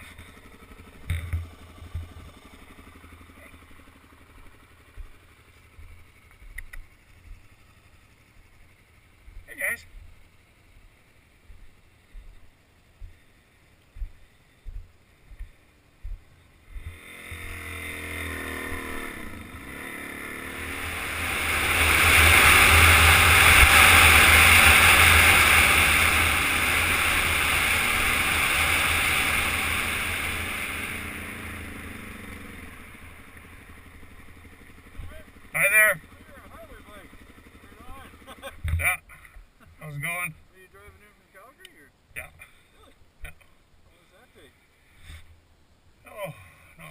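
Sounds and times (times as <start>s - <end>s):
motor vehicle passing: 0.0s - 41.4s
soft low thumps: 4.4s - 7.5s, 10.8s - 17.7s.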